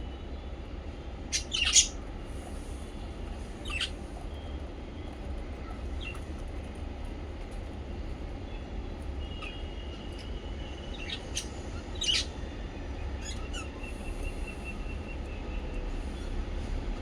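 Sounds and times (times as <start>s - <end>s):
parrots chirping: 1.3s - 2.0s, 3.6s - 4.0s, 10.9s - 12.3s.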